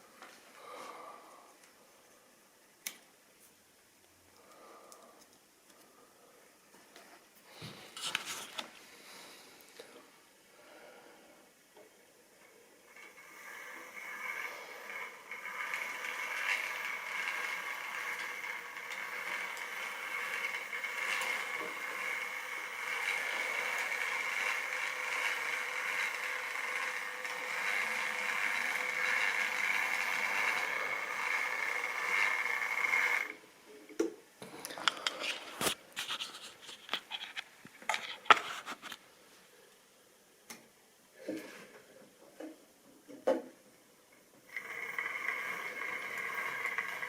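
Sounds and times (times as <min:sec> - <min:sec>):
model train motor whining: 0:12.8 - 0:33.4, 0:44.5 - 0:47.0
wheels rolling over rails: 0:12.9 - 0:33.4, 0:44.5 - 0:47.0.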